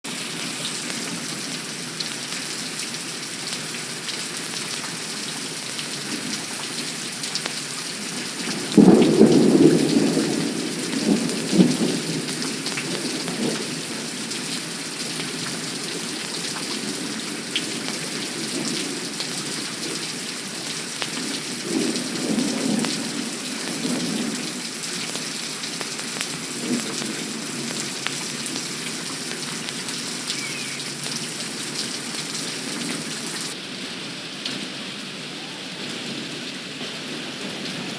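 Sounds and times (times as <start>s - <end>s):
heavy rain: 0.0s - 37.9s
thunder rumbling: 8.5s - 13.6s.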